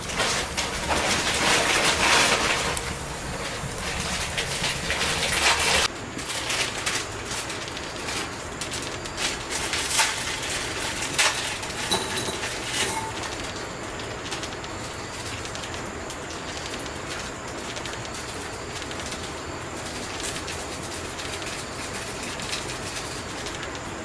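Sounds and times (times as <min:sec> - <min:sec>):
hot water pouring: 0:00.0 - 0:05.9, 0:06.8 - 0:24.0
bowl and utensils clicking: 0:09.6 - 0:13.5.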